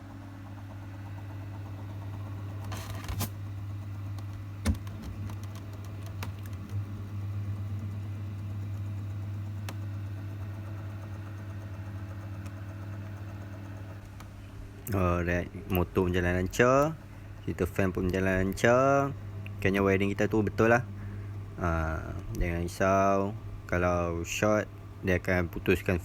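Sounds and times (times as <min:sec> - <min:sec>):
fan and motor humming: 0:00.0 - 0:26.0.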